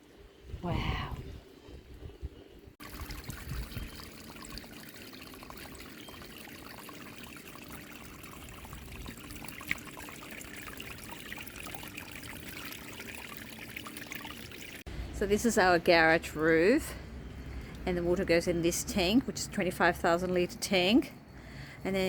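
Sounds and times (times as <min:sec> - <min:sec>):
water trickling and splashing: 0:00.9 - 0:14.9.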